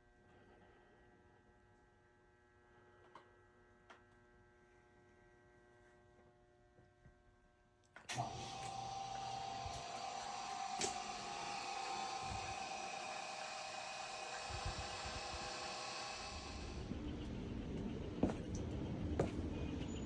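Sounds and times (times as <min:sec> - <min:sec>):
machine running with whine: 0:08.2 - 0:20.0.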